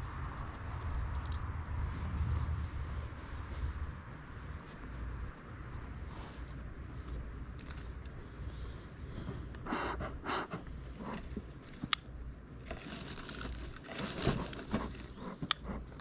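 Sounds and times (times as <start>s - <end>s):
dry material crumpling and rustling: 12.6s - 15.2s.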